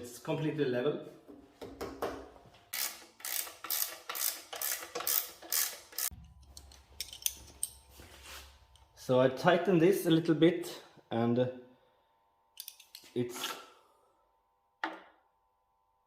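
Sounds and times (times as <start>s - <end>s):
wrench clicking strokes: 2.7s - 7.8s.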